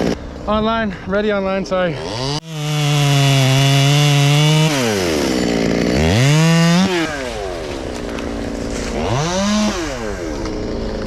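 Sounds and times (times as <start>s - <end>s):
chainsaw cutting wood: 2.0s - 11.0s.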